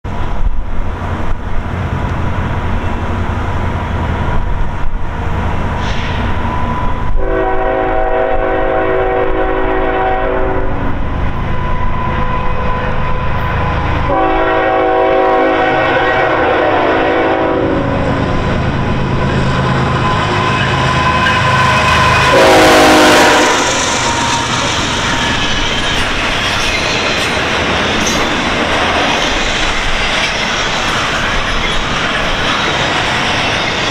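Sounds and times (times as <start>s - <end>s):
diesel locomotive rumbling past: 0.0s - 33.9s
train horn blasts: 6.7s - 18.2s, 19.9s - 25.4s.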